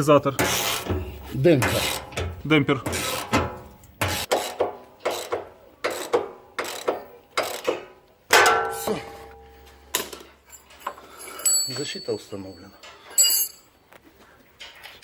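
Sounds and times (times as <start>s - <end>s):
metallic clang: 0.0s - 5.5s, 7.5s - 10.9s.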